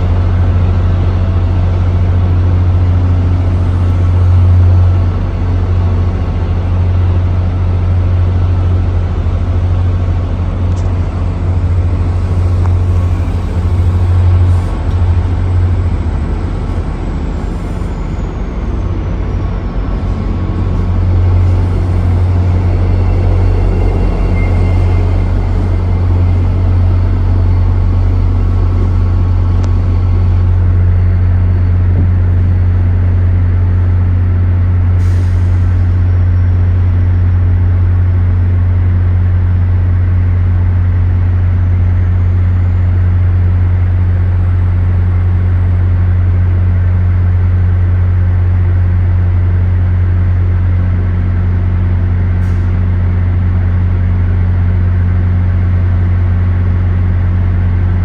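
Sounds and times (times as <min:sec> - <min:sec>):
train deep hum: 0:00.0 - 0:58.0
faint high whine: 0:11.0 - 0:33.8.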